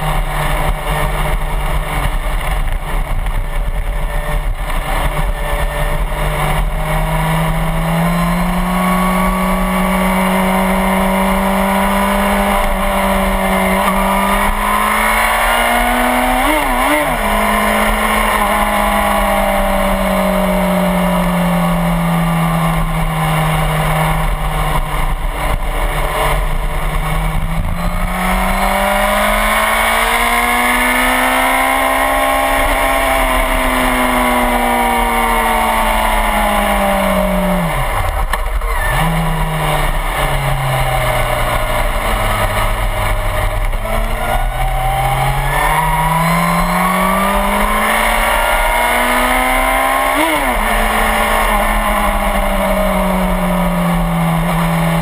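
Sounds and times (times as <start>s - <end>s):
motorcycle engine at speed: 0.0s - 55.0s.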